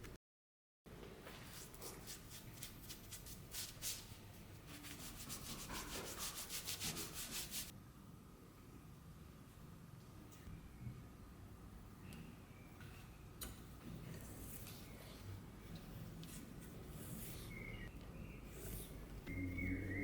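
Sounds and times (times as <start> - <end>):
sandpaper rubbed by hand: 4.7 - 7.7.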